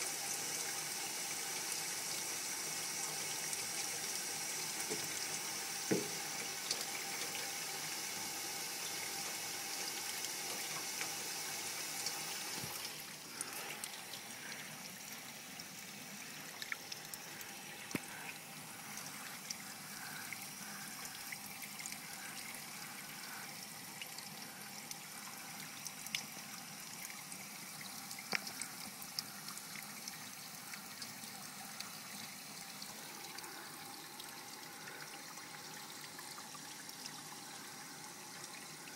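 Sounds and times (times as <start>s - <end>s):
water running and trickling: 0.0s - 38.9s.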